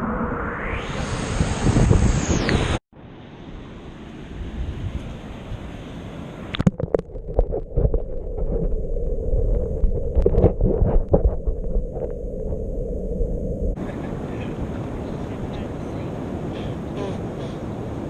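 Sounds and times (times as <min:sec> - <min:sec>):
wind on microphone: 0:00.0 - 0:02.8, 0:04.3 - 0:18.0
muffled low rumble: 0:07.1 - 0:16.7.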